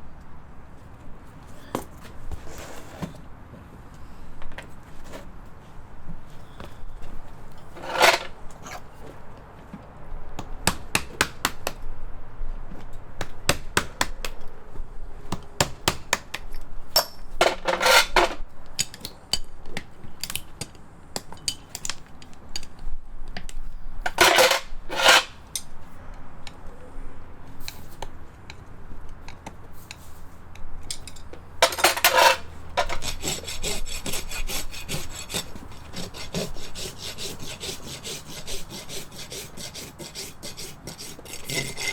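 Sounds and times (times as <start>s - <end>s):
rasp scraping hoof: 7.6s - 9.0s, 17.4s - 18.4s, 24.1s - 25.4s, 31.6s - 41.9s.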